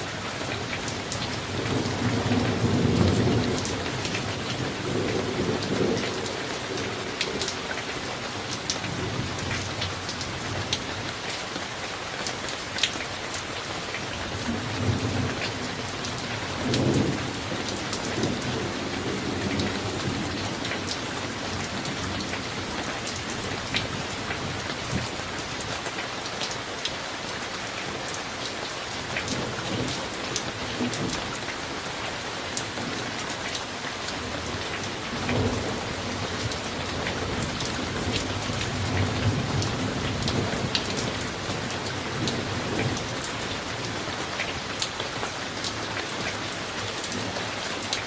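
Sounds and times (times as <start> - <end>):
heavy rain: 0.0 - 48.0
thunder rumbling: 0.5 - 8.1.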